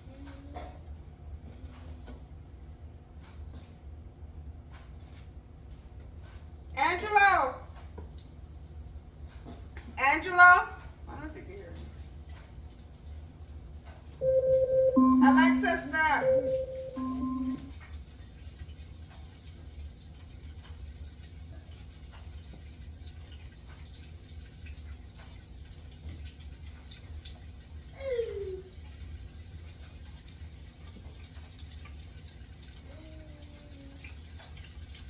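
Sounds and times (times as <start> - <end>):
low hum: 14.2 - 17.7.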